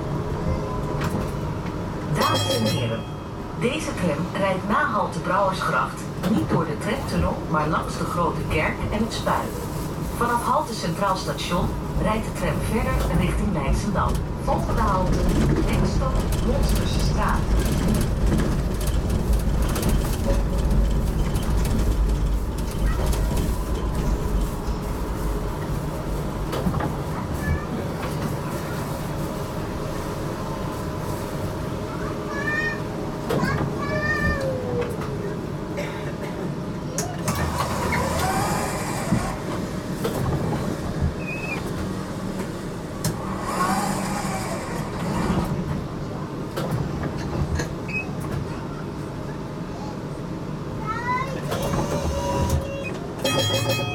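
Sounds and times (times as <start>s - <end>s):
tram wheels rumbling on rails: 0.0s - 53.9s.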